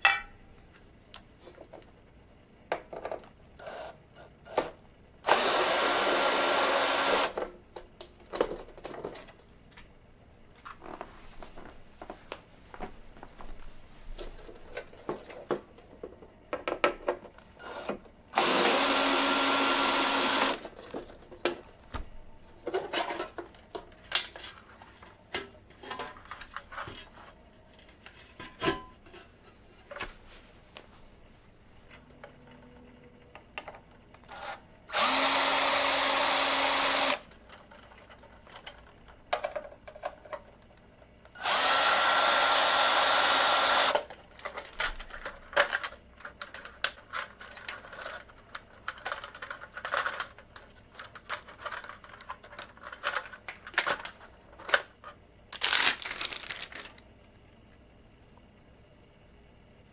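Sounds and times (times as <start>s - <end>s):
power drill running: 5.2s - 7.4s, 17.6s - 20.6s, 34.3s - 37.3s, 41.4s - 44.1s
clicks and knocks of parts: 7.4s - 9.9s, 37.3s - 41.1s, 43.9s - 57.0s.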